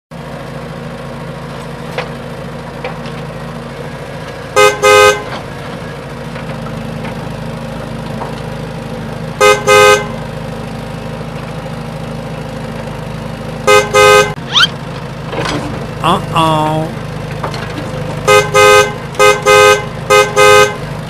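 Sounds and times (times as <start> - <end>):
vehicle engine hum: 0.1 - 21.0
vehicle horn beeping: 4.5 - 5.5, 9.4 - 10.2, 13.6 - 14.5, 18.2 - 21.0.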